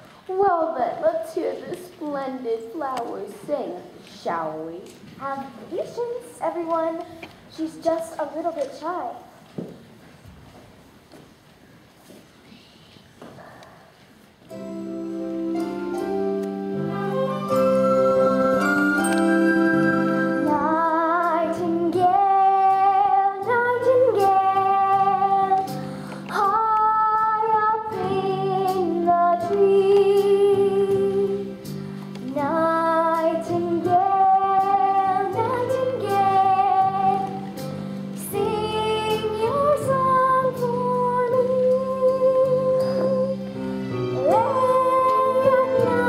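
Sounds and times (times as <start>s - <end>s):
instrumental accompaniment: 14.4s - 46.0s
child singing: 20.4s - 25.7s, 26.3s - 31.5s, 32.3s - 37.5s, 44.1s - 46.0s.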